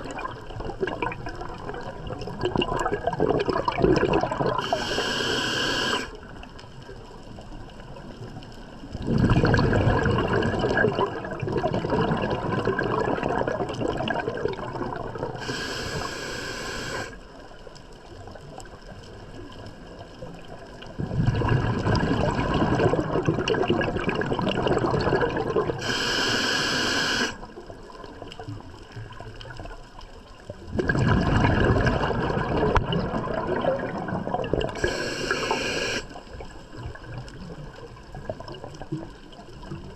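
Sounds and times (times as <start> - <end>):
exhaled bubbles rumbling: 0.0 - 5.4, 6.2 - 16.3, 18.2 - 26.2, 27.4 - 39.9
hissing regulator inhale: 4.6 - 6.2, 15.4 - 17.2, 25.8 - 27.4, 34.8 - 36.2.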